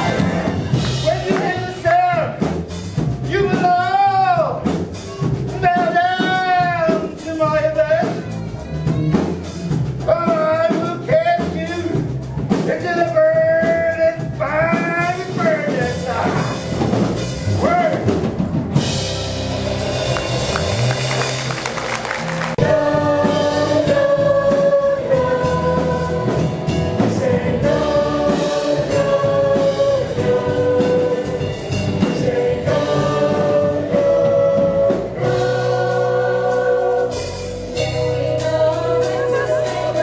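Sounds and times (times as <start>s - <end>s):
live band playing: 0.0s - 40.0s
voices singing long notes: 21.6s - 40.0s.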